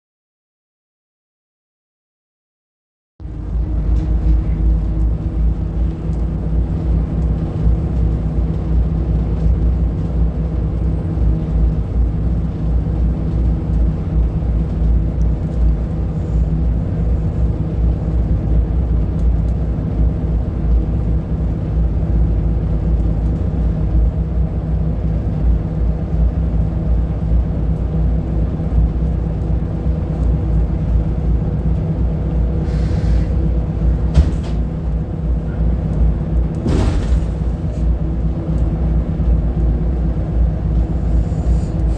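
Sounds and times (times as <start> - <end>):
diesel bus engine rumbling: 3.2 - 41.9
brief air hisses: 32.6 - 33.4.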